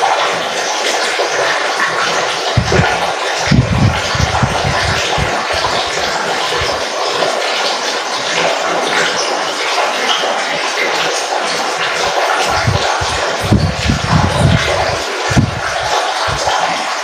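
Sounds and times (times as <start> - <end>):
water splashing and trickling: 0.0 - 17.0
low rumbling pulses: 2.6 - 6.8, 12.4 - 16.6.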